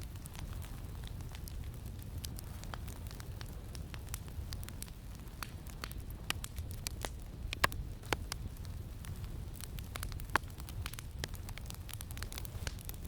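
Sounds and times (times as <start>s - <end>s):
campfire crackling and popping: 0.0s - 13.0s
low rumble of wind: 0.0s - 13.0s.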